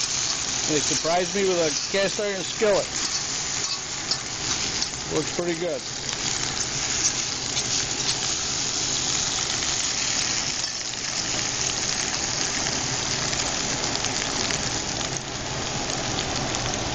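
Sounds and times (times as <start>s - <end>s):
potatoes sizzling in oil: 0.0s - 16.9s.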